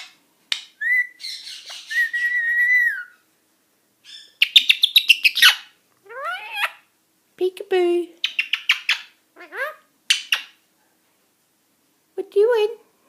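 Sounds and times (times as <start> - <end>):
parakeet whistling: 0.8 - 3.2, 4.0 - 6.7.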